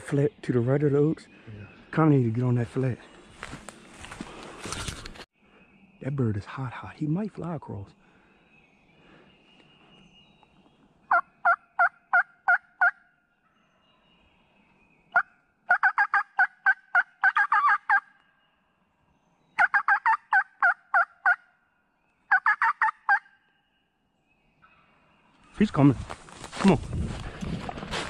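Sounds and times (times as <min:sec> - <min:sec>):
wild turkey yelping: 0:11.1 - 0:13.0, 0:15.1 - 0:18.1, 0:19.6 - 0:21.5, 0:22.3 - 0:23.4.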